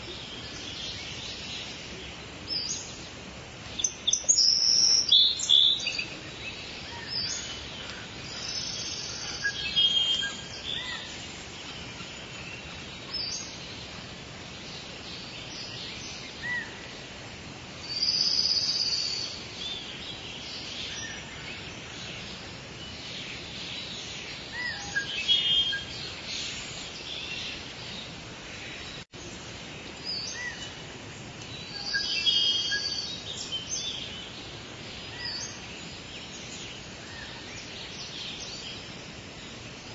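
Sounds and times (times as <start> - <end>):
light rain hiss: 0.0 - 39.9
songbirds chirping: 0.0 - 39.9.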